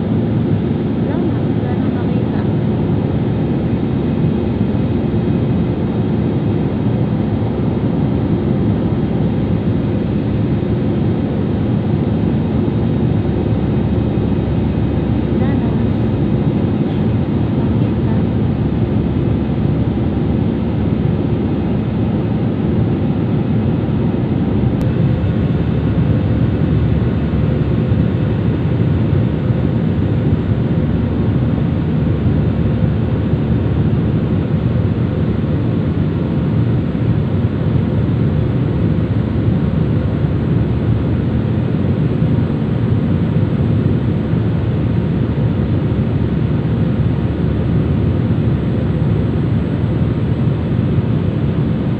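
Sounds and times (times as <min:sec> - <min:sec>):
airliner cabin engine drone: 0:00.0 - 0:51.9.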